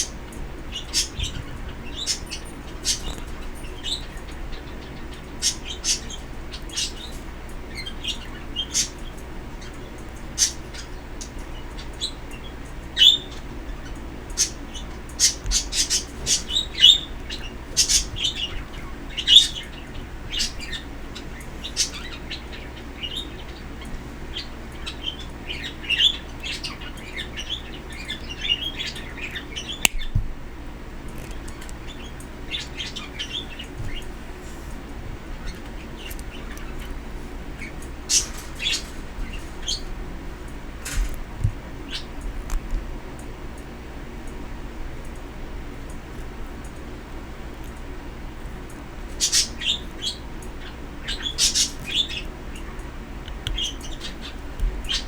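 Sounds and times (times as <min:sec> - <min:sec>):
pet birds chirping: 0:00.0 - 0:55.0
steady low hum: 0:00.0 - 0:55.0.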